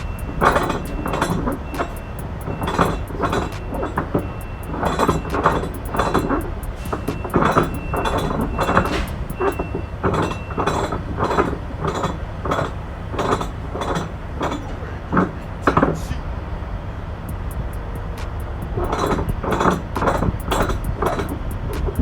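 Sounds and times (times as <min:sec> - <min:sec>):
metallic clinks and knocks: 0:00.0 - 0:16.0, 0:17.3 - 0:22.0
faint short beep: 0:06.8 - 0:10.6.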